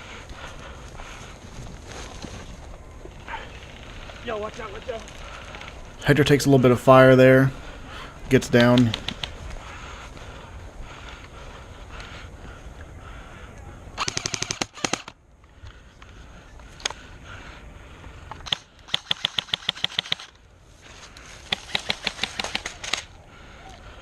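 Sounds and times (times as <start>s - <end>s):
airsoft gun bursts: 7.2s - 9.4s, 14.0s - 15.1s, 18.4s - 20.3s, 21.4s - 23.1s.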